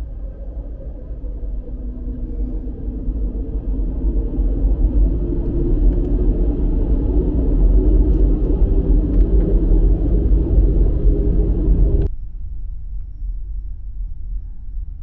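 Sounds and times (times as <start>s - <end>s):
low vehicle rumble: 0.0s - 15.0s.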